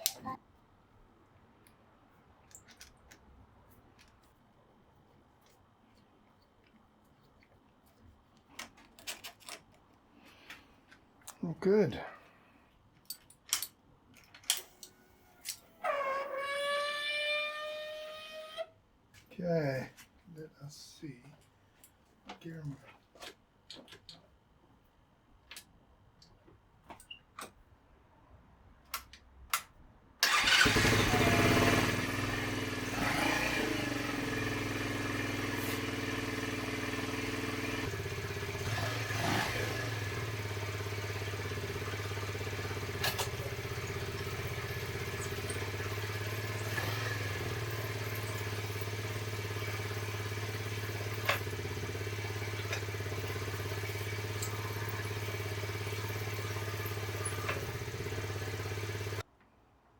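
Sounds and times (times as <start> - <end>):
motorcycle engine idling: 30.3 - 59.2.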